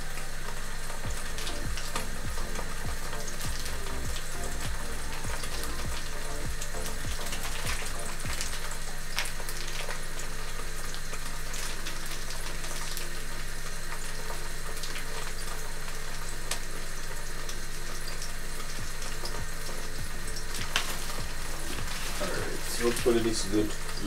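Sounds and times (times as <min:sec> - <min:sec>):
low hum: 0:00.0 - 0:13.3
food sizzling in a pan: 0:00.0 - 0:24.0.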